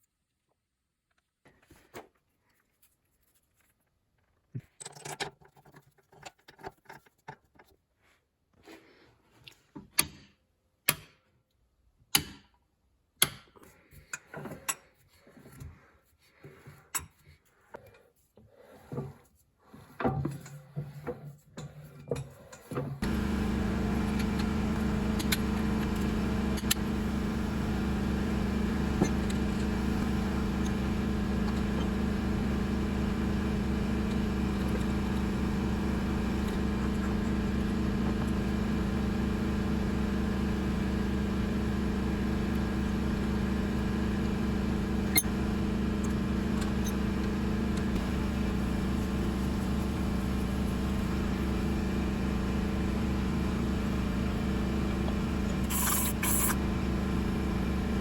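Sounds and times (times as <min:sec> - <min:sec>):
diesel engine running steadily: 0:23.0 - 0:58.0.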